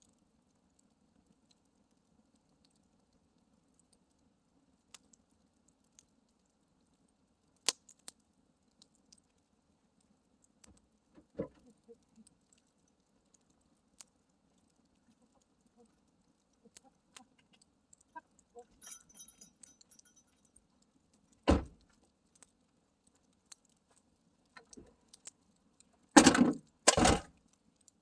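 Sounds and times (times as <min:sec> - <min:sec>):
campfire crackling: 0:00.0 - 0:28.0
handling noises: 0:18.7 - 0:20.3.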